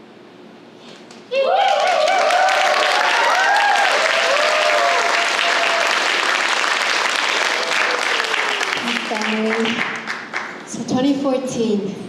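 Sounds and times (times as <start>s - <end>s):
whooping cheers: 1.3s - 9.3s
audience applauding: 1.4s - 10.8s.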